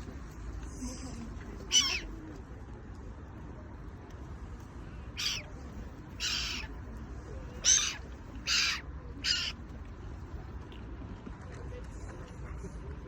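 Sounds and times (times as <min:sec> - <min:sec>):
low background rumble: 0:00.0 - 0:11.2
gulls calling: 0:01.6 - 0:02.1, 0:05.2 - 0:05.5, 0:06.2 - 0:06.7, 0:07.5 - 0:09.6.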